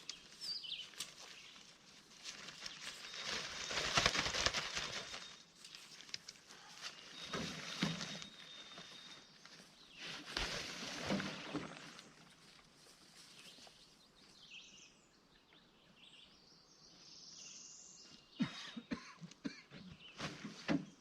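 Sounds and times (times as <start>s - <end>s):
rustle: 0.0s - 14.8s
birds chirping faintly: 0.0s - 21.0s.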